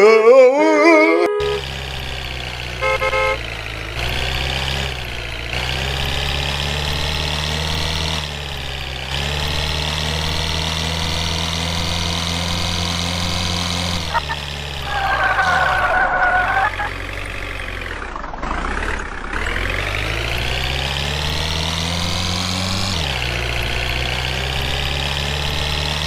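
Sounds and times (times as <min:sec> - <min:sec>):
short horn toots: 0:01.0 - 0:01.6, 0:02.8 - 0:03.4
truck engine running: 0:01.4 - 0:26.0.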